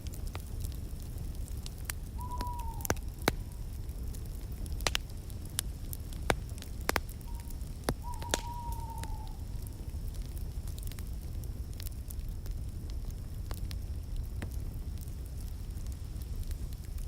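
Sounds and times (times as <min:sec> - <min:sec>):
fire crackling and popping: 0:00.0 - 0:17.0
fire rumbling: 0:00.0 - 0:17.0
thin whistle from fire: 0:01.4 - 0:17.0.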